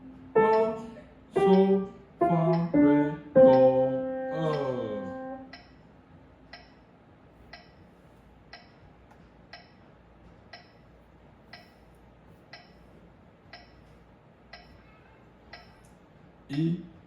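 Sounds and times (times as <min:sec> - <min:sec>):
metronome ticking: 0:00.2 - 0:05.7, 0:06.5 - 0:06.8, 0:13.5 - 0:13.8, 0:15.5 - 0:15.8.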